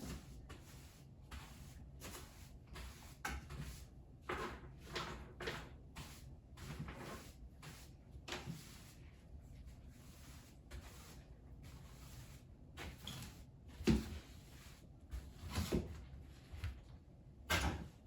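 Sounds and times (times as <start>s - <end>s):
household things knocking and scraping: 3.3s - 5.8s.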